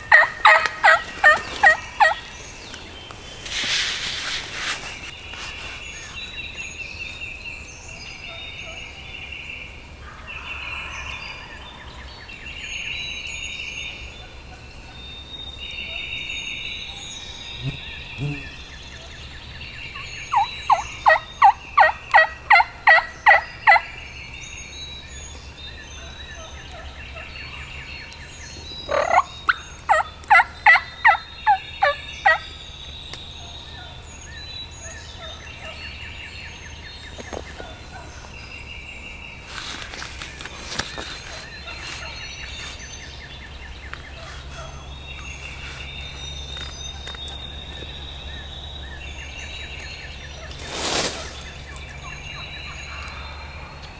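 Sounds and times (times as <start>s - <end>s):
wild turkey calling: 0.0s - 7.4s, 17.8s - 24.6s, 28.9s - 35.9s, 37.0s - 53.7s.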